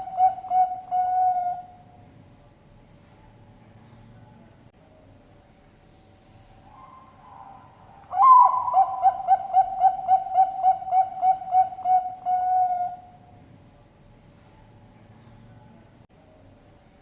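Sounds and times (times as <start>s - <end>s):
dove cooing: 0.0s - 1.8s, 6.7s - 13.2s.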